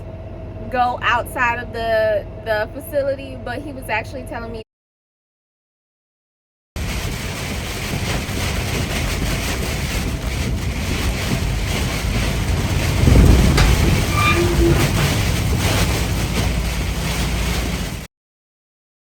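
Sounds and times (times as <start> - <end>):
road and wind noise: 0.0 - 4.4, 6.8 - 18.1
truck rumbling on the move: 0.0 - 4.6, 6.8 - 18.1.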